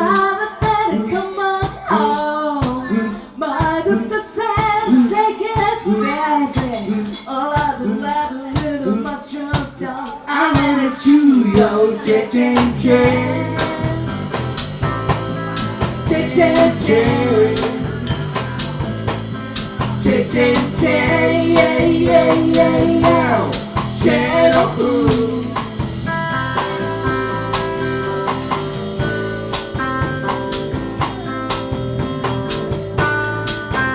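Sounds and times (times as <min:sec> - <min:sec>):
drum kit beat: 0:00.0 - 0:33.9
live blues band playing: 0:10.6 - 0:33.9.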